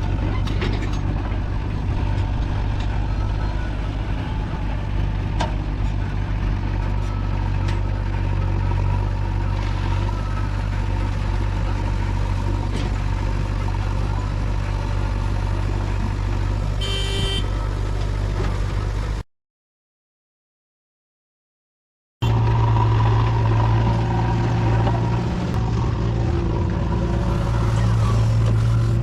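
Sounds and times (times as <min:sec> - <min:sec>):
diesel engine running: 0:00.0 - 0:19.2, 0:22.2 - 0:29.0
short horn toot: 0:16.8 - 0:17.6.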